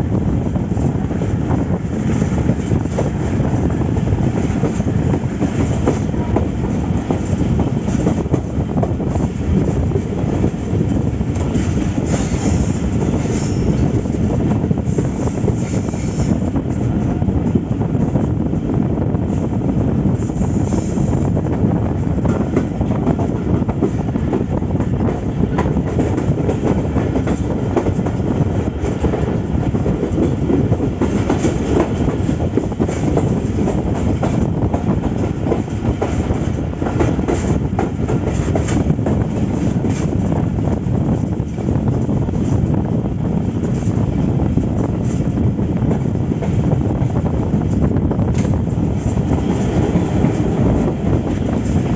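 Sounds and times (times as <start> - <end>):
train wheels rumbling on rail: 0.0 - 51.9.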